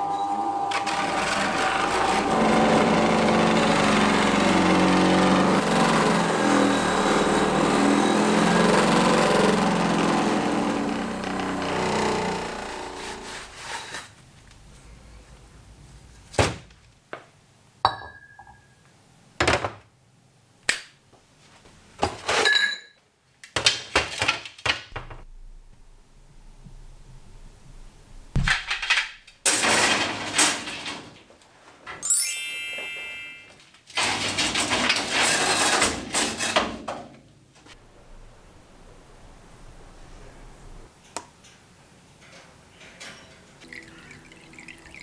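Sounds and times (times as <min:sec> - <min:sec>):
noisy bursts: 0:25.0 - 0:28.4, 0:37.8 - 0:40.9.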